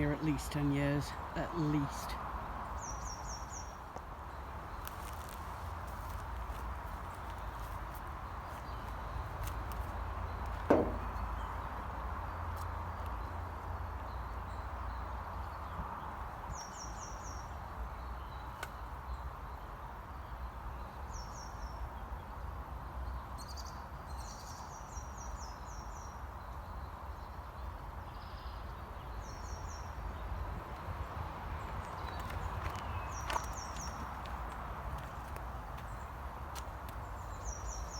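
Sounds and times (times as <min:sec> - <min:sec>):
wind rumbling in woods: 0:00.0 - 0:37.9
sharp knock: 0:10.6 - 0:11.2.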